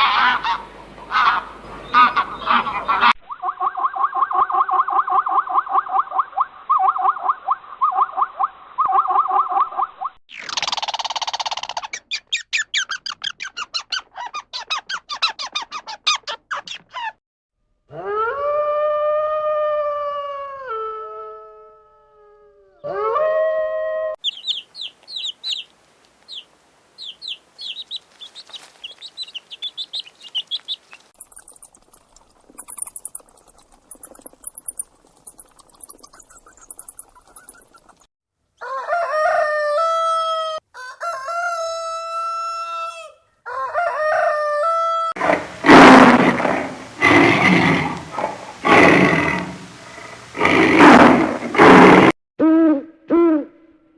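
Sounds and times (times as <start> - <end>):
long crowing calls: 0.0 - 3.2, 38.6 - 45.2
fast chattering rattle: 10.4 - 12.1, 31.2 - 38.0
high bird chirping: 10.4 - 17.1, 24.2 - 25.7, 26.3 - 38.1.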